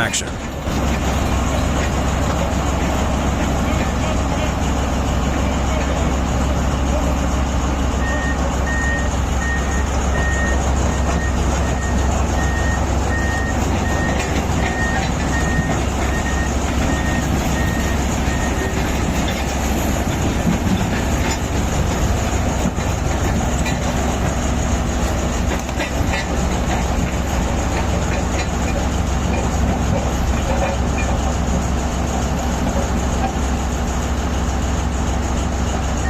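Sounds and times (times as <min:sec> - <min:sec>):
bulldozer diesel engine under load: 0:00.0 - 0:36.0
metallic clanking of tracks: 0:00.0 - 0:36.0
reversing alarm beeping: 0:08.0 - 0:19.0.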